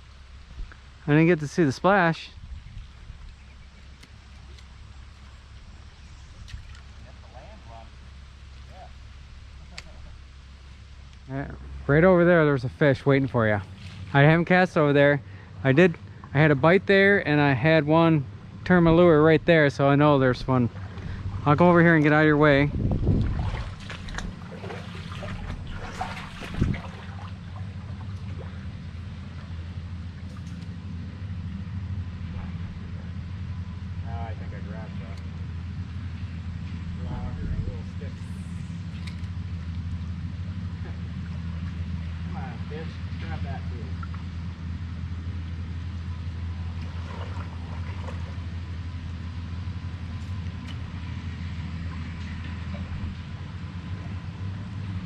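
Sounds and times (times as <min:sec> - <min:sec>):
low motor hum: 0:00.0 - 0:55.0
river water splashing and trickling: 0:02.6 - 0:11.2, 0:12.0 - 0:17.3, 0:20.0 - 0:33.6, 0:38.7 - 0:42.3, 0:43.0 - 0:55.0.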